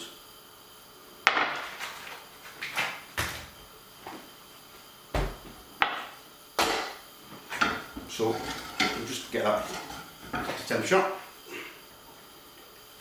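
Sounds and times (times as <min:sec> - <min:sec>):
kitchen items knocking and clunking: 0:01.3 - 0:03.7, 0:05.2 - 0:10.9.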